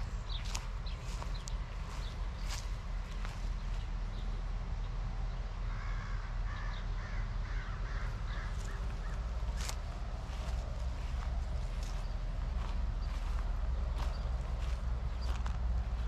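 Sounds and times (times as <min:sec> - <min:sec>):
bird calling: 0:05.7 - 0:15.5.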